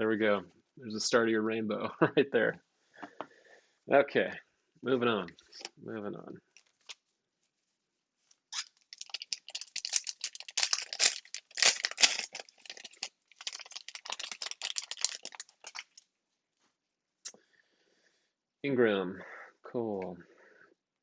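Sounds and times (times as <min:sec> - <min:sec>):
foil wrapper tearing and crinkling: 0:08.5 - 0:16.1.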